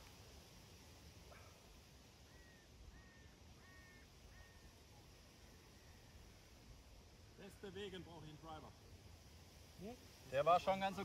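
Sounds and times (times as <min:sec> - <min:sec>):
bird calling faintly: 0:01.2 - 0:08.1.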